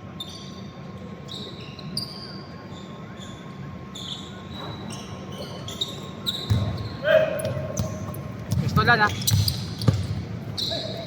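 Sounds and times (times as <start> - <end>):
sneakers squeaking: 0.1 - 11.0
basketball bouncing: 6.5 - 10.3.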